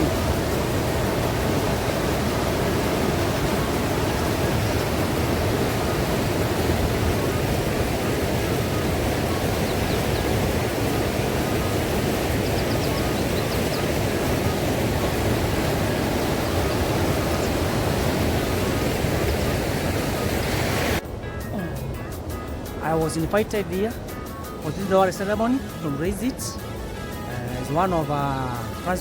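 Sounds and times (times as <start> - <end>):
steady low rushing noise: 10.5 - 29.0.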